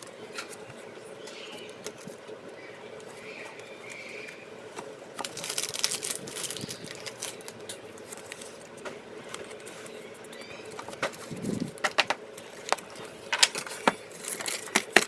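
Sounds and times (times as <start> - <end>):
steady low hum: 0.0 - 15.0
card packs rustling: 4.8 - 10.0, 10.8 - 15.0
cards clicking and tapping: 10.8 - 15.0.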